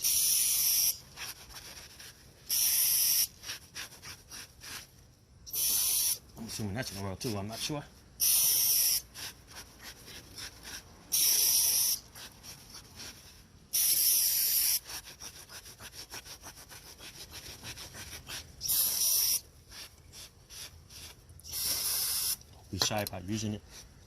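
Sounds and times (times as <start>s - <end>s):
aerosol spray hissing: 0.0s - 1.0s, 2.5s - 3.3s, 5.5s - 6.6s, 7.2s - 9.3s, 11.1s - 12.0s, 13.7s - 14.8s, 18.6s - 22.4s
towel scrubbing on concrete: 6.4s - 7.8s.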